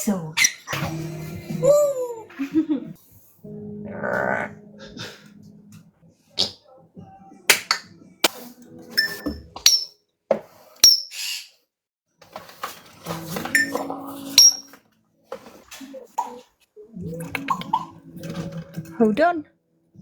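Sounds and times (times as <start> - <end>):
parrots clicking and chirping: 9.6 - 9.9, 14.4 - 14.7.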